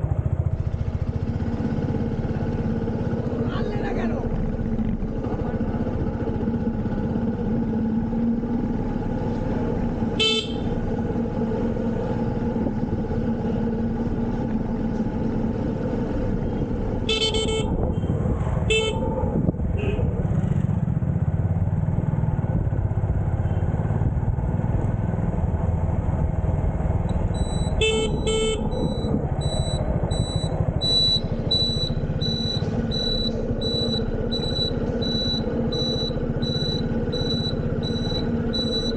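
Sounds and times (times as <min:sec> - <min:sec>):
motorcycle engine running: 0:00.0 - 0:38.9
vehicle horn honks: 0:10.2 - 0:10.8, 0:17.0 - 0:19.1, 0:19.7 - 0:20.1, 0:27.7 - 0:29.0
high-pitched beeps: 0:27.2 - 0:38.9.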